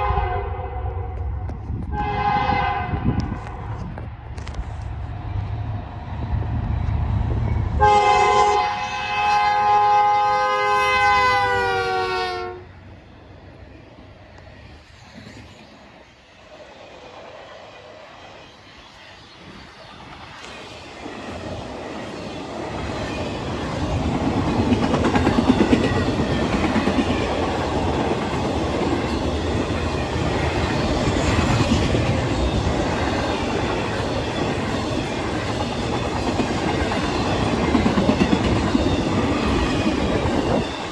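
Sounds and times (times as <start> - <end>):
train horn chord: 0.0 - 3.8, 7.8 - 12.7
passing train rumble: 0.0 - 40.9.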